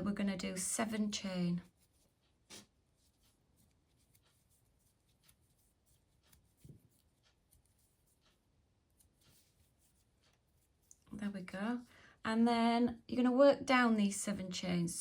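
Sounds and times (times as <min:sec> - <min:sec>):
yarn rubbing over crochet hook: 0:00.0 - 0:11.9.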